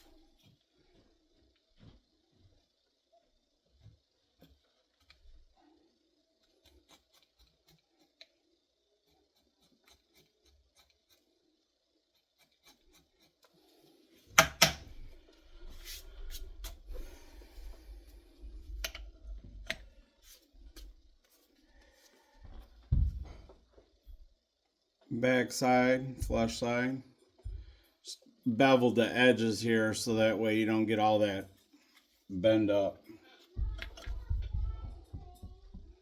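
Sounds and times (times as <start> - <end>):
tool scraping leather: 6.4 - 8.4, 9.0 - 11.5, 12.1 - 14.8.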